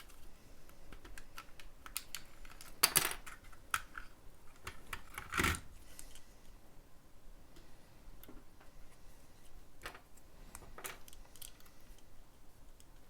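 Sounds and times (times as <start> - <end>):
small plastic clicks: 0.0 - 6.2.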